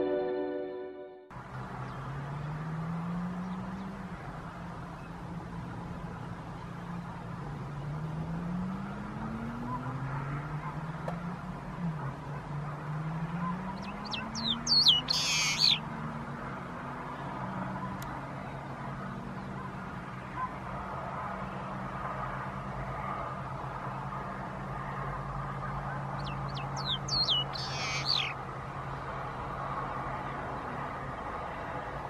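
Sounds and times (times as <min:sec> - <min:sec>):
bird chirping: 0:13.4 - 0:15.9, 0:26.0 - 0:28.4.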